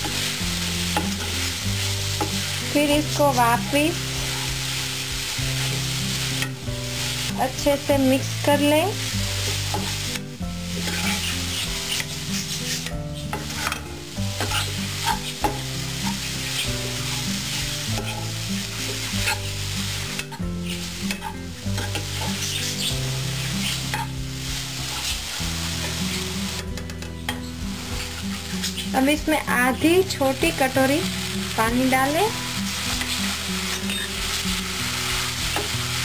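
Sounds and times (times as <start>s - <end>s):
vegetables sizzling in frying pan: 0.0s - 36.0s
steel spoon scraping pan: 9.4s - 24.2s, 27.0s - 29.0s, 32.8s - 34.4s.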